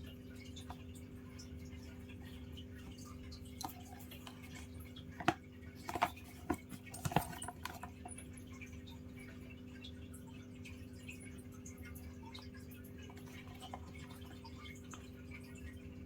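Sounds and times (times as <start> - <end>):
light clicks and taps: 0.4 - 15.9.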